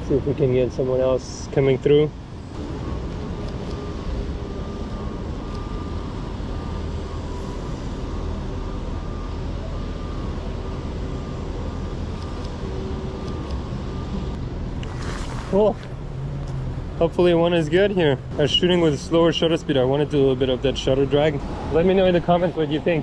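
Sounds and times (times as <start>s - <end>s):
low traffic rumble: 0.0s - 23.0s.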